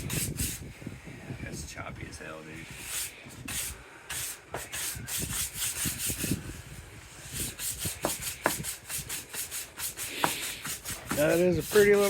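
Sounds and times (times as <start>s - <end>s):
rubbing on wooden board: 0.0s - 0.6s, 2.8s - 6.4s, 7.3s - 12.0s.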